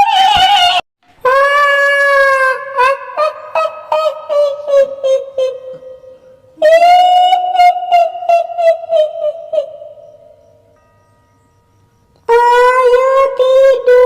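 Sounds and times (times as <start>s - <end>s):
shrill female ghost wail: 0.0s - 5.6s
cackling laugh: 1.3s - 6.0s, 8.0s - 9.9s.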